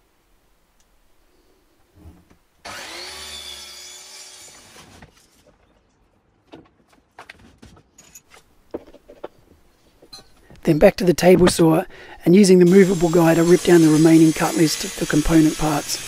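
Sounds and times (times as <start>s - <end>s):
wooden scraping and creaking: 4.8s - 11.8s.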